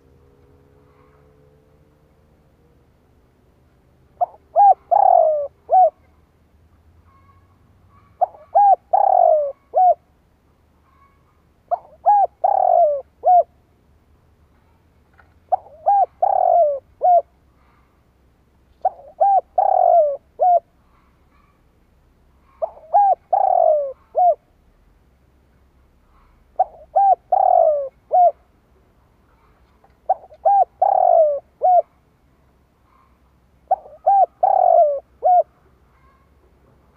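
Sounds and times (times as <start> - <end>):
dove cooing: 4.2 - 6.1, 7.1 - 10.1, 10.9 - 13.6, 15.5 - 17.8, 18.8 - 21.6, 22.4 - 24.5, 26.2 - 28.5, 29.4 - 32.0, 32.9 - 36.2.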